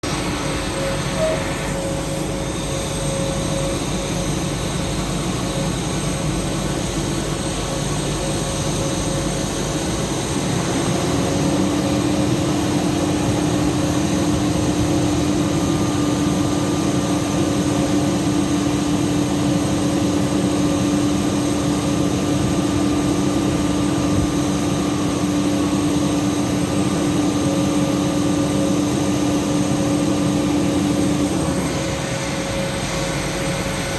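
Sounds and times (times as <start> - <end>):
parked airliner noise: 0.0 - 33.9
steady hum: 0.0 - 33.9.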